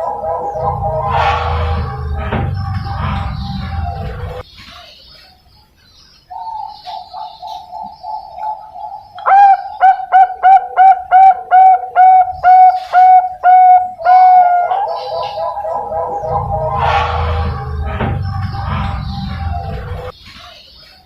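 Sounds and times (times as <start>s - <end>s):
dove trilling and cooing: 0.0s - 1.3s, 6.3s - 17.0s.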